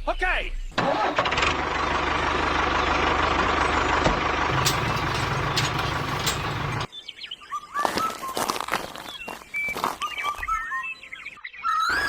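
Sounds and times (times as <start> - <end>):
engine running steadily: 1.2 - 6.9.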